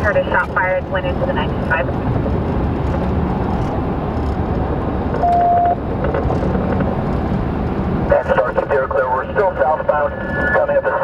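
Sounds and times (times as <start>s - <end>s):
car engine and road rumble: 0.0s - 11.0s
short high beep: 5.2s - 5.8s.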